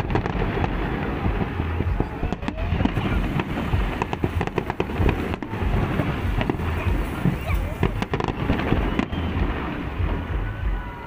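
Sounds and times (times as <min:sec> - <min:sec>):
continuous low rumble: 0:00.0 - 0:11.0
fireworks bangs and crackles: 0:00.0 - 0:11.0.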